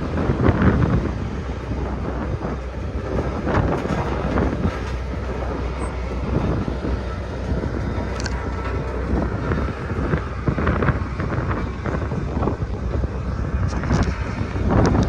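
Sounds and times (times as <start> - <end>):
road roller engine running: 0.0 - 15.0
wind noise on microphone: 0.0 - 15.0.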